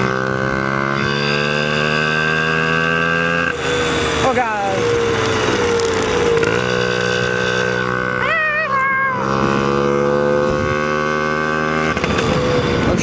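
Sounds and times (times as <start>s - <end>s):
dirt bike engine running: 0.0s - 13.0s
rider yelling: 8.0s - 9.5s.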